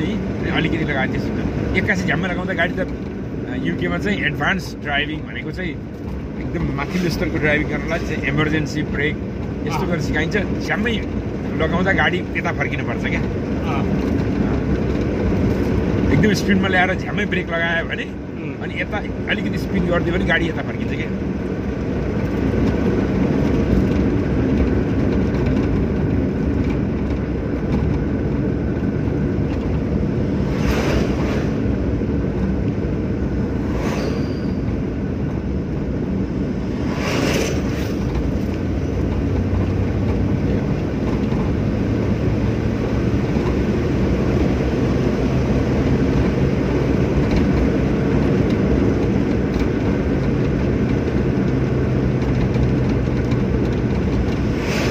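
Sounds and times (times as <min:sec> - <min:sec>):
car road and engine rumble: 0:00.0 - 0:54.9
rushing swells: 0:30.2 - 0:32.0, 0:33.3 - 0:35.0, 0:36.5 - 0:38.1, 0:54.4 - 0:54.9.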